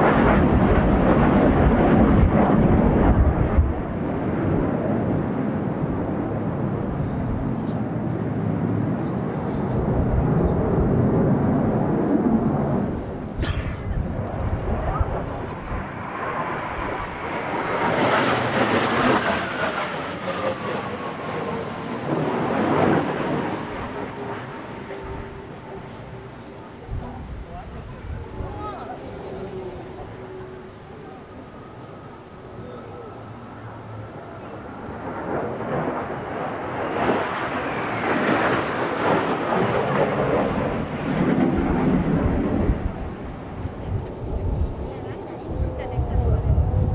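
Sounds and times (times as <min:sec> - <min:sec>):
wind rumble on microphone: 0:00.0 - 0:19.4, 0:24.9 - 0:31.4, 0:39.5 - 0:46.9
jet flying past: 0:00.0 - 0:46.9.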